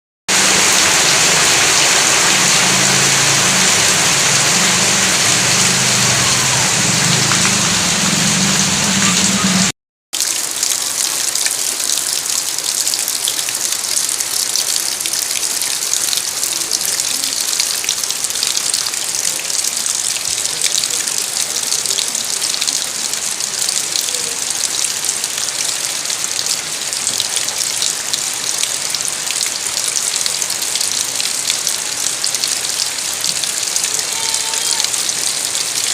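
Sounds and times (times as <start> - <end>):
heavy rain pouring: 0.3 - 35.9.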